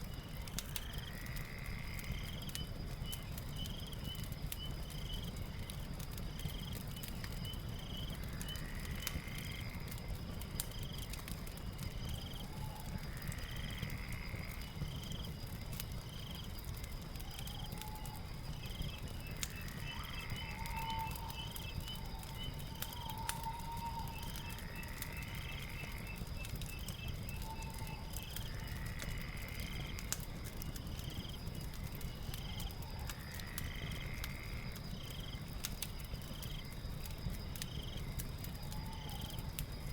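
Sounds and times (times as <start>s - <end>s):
fire crackling and popping: 0.0s - 39.9s
insects chirping: 0.0s - 39.9s.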